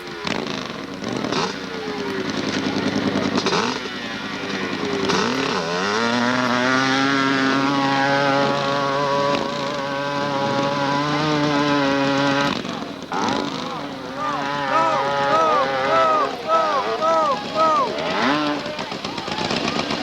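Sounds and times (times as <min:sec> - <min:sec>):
motorcycle engine at full throttle: 0:00.0 - 0:20.0.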